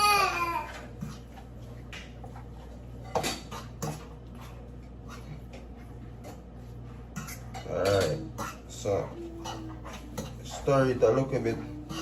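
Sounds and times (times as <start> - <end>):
steady low hum: 0.0 - 12.0
fork scraping a dish: 2.6 - 12.0.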